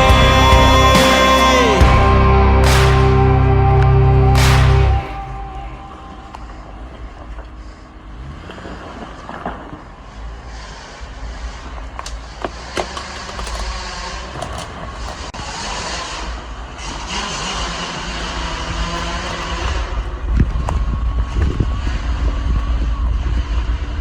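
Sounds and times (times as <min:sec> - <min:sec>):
engine running low: 0:00.0 - 0:10.0.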